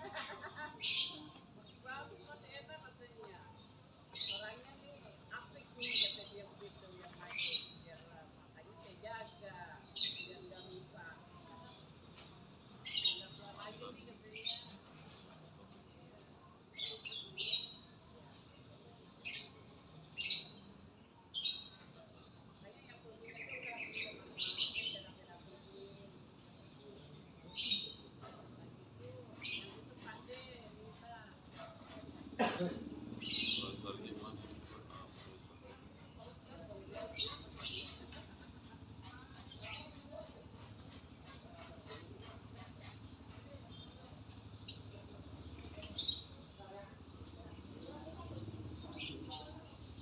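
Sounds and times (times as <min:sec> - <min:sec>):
bird chirping: 0:23.2 - 0:50.0.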